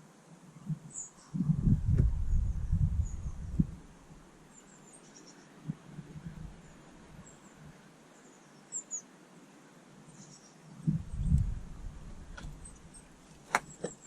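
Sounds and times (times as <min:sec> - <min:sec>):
small birds chirping: 0:00.6 - 0:14.0
low rumble: 0:01.4 - 0:03.9.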